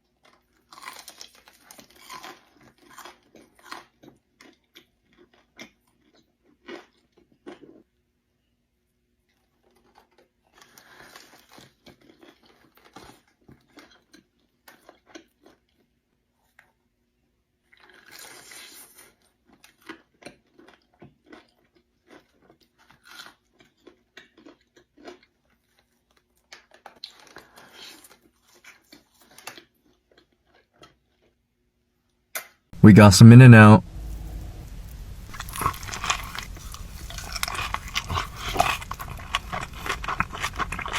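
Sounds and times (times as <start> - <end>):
person crunching food: 0.7 - 3.8, 33.8 - 40.9
chewing clicks: 33.8 - 40.9.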